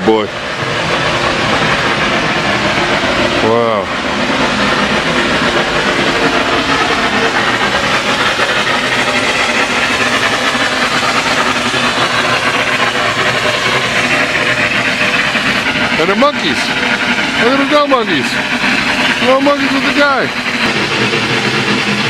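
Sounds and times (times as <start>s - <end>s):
geyser rushing hiss: 0.0s - 22.0s.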